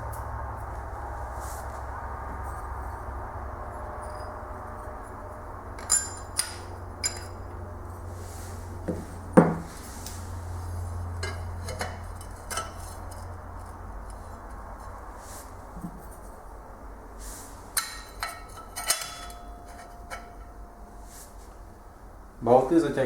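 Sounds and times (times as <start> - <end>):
steady low hum: 0.0 - 23.0
metal tools clinking: 3.7 - 5.1, 5.7 - 7.6, 17.8 - 21.4.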